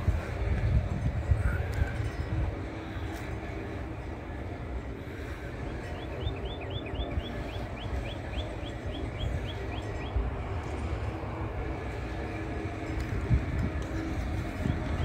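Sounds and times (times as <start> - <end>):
low outdoor rumble: 0.0 - 15.0
songbird chirping: 5.8 - 10.8.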